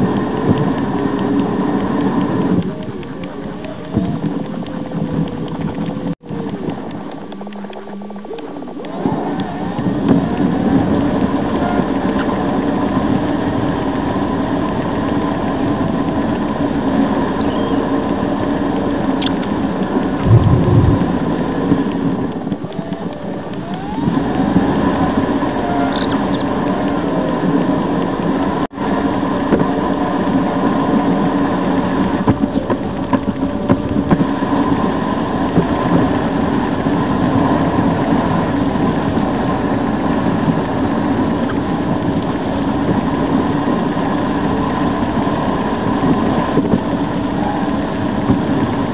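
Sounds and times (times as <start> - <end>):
car engine and road hum: 0.0 - 48.9
brief high squeaks: 17.4 - 17.9, 19.2 - 19.5, 25.8 - 26.5.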